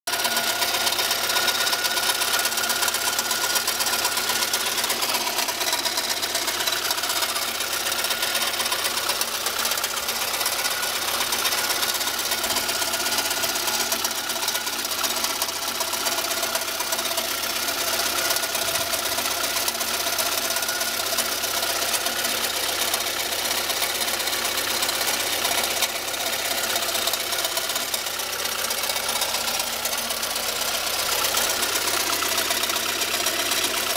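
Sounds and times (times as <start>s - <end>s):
car engine running: 0.1s - 33.9s
strange engine noise: 0.1s - 33.9s.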